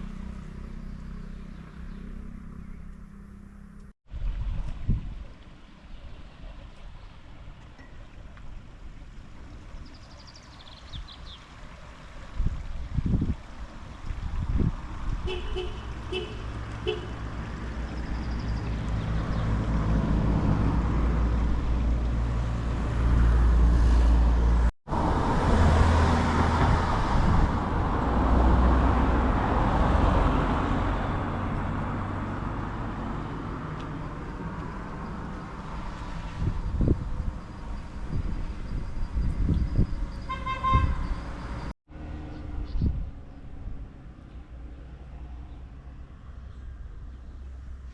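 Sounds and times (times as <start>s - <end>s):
vehicle engine passing: 0.0s - 3.9s, 14.3s - 37.0s.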